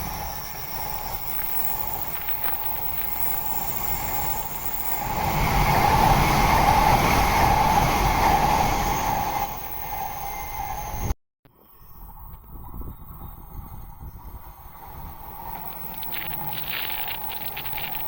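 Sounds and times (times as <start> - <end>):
bullet train passing: 0.0 - 11.1.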